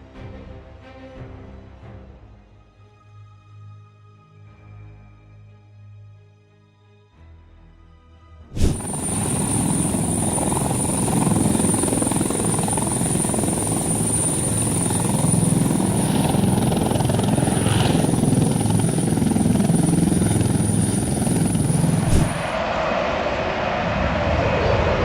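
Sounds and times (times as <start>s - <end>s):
helicopter rotor beating: 8.6s - 22.6s
thin high whine: 8.6s - 22.6s.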